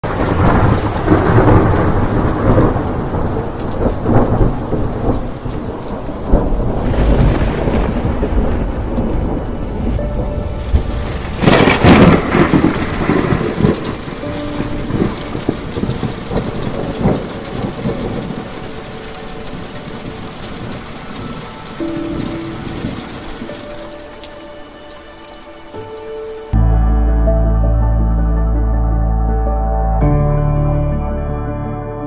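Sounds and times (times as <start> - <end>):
sharp thunderclap: 0.0 - 23.7
thunder rumbling: 0.0 - 26.2
heavy rain pouring: 0.0 - 26.6.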